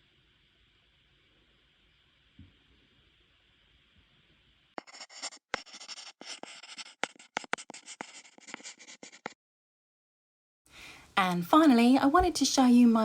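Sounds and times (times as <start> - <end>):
pencil scratching on paper: 4.8 - 9.4.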